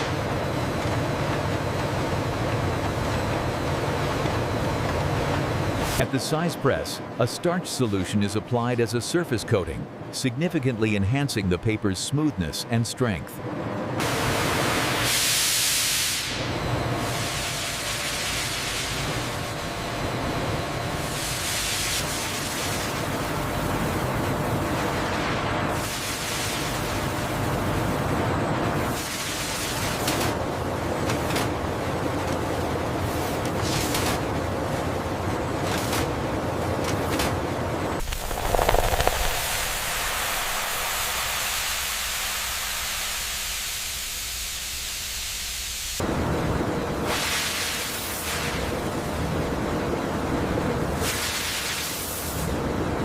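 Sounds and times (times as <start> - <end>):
paper-making machinery running: 0.0 - 8.6, 16.2 - 42.5
steady hiss: 38.0 - 46.0.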